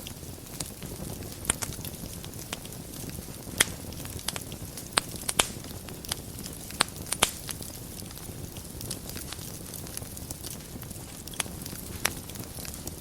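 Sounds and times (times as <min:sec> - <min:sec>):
wood fire crackling: 0:00.0 - 0:13.0
sharp wood pops: 0:01.4 - 0:01.8, 0:03.5 - 0:08.2, 0:10.4 - 0:12.8.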